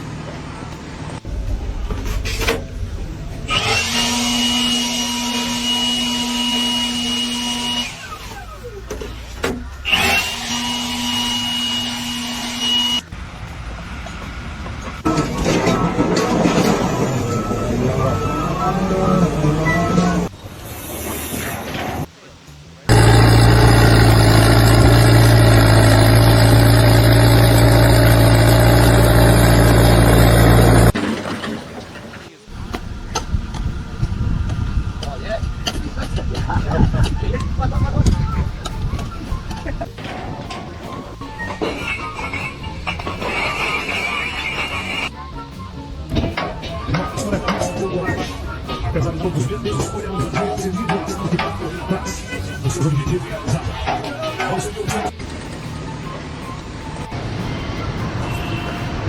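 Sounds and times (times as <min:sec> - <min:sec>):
power tool motor running: 0:03.5 - 0:08.4, 0:09.8 - 0:13.0, 0:22.9 - 0:31.0.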